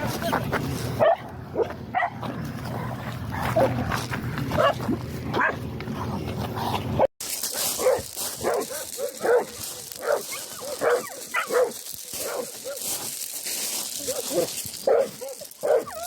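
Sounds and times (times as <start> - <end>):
dog barking: 1.0 - 2.2, 4.6 - 4.8, 5.4 - 5.6, 7.5 - 13.0, 14.0 - 16.0.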